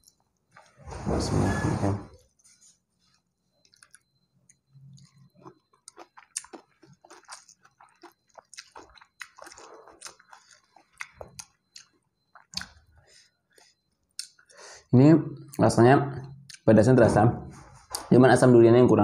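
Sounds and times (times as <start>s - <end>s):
person chewing food: 0.0s - 0.8s, 3.0s - 14.6s.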